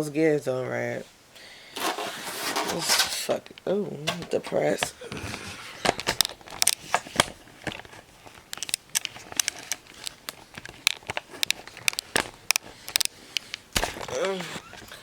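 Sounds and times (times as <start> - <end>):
gift wrapping crinkling: 4.1 - 15.0.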